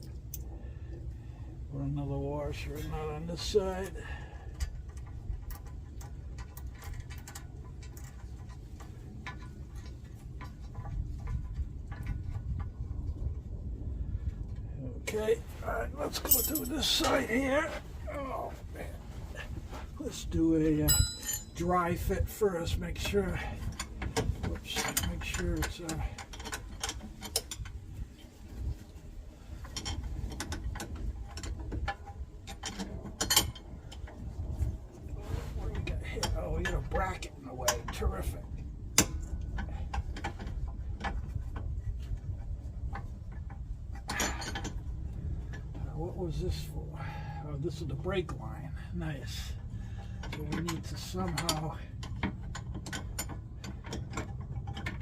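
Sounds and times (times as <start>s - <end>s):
steady low rumble: 0.0s - 55.0s
metallic clicks and knocks: 20.8s - 28.3s, 29.6s - 34.3s, 35.8s - 46.4s, 49.6s - 55.0s.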